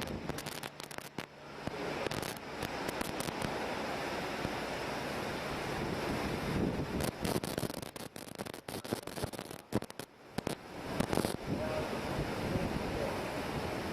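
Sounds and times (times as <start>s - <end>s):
sharp crackles and pops: 0.0s - 3.6s, 6.9s - 11.5s
flooded river rushing: 0.0s - 13.9s.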